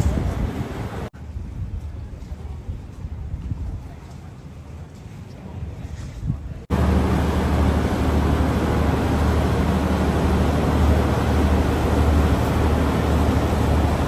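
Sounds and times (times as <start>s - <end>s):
boat engine droning: 6.7s - 14.0s
water noise: 6.7s - 14.0s.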